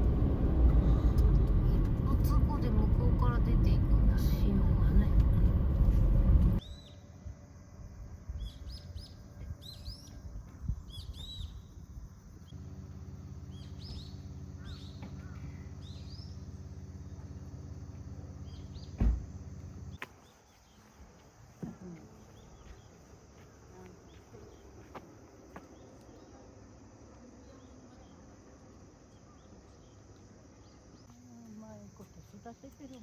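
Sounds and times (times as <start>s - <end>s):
vehicle engine idling hum: 0.0s - 6.8s, 7.4s - 33.0s
small birds chirping: 6.5s - 7.1s, 8.3s - 12.6s, 13.3s - 33.0s
thump: 18.9s - 19.3s.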